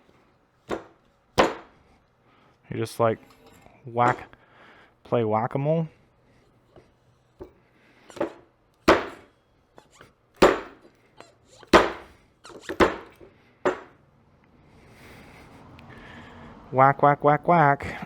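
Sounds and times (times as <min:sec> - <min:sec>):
sharp knocks on metal seal: 0:00.7 - 0:01.7, 0:08.1 - 0:09.2, 0:10.4 - 0:10.8, 0:11.6 - 0:13.9.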